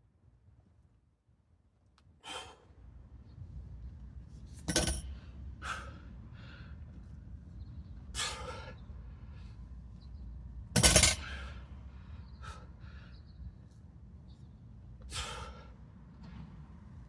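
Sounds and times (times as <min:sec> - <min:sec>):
sharp forceful breaths: 0:08.2 - 0:09.6, 0:15.1 - 0:15.8.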